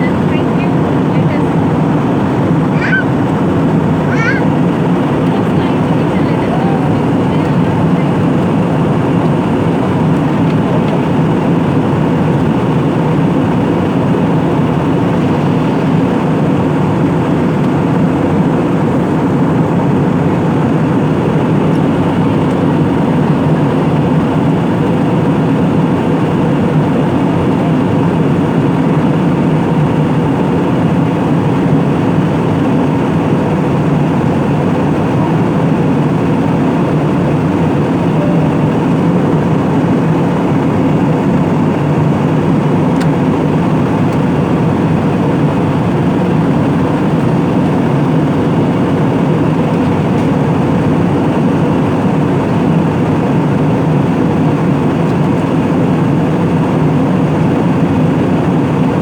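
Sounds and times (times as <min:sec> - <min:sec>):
airliner engines droning: 0:00.0 - 0:59.0.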